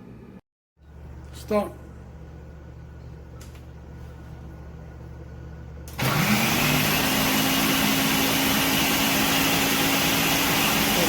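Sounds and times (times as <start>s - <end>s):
blender motor running: 5.9s - 11.0s.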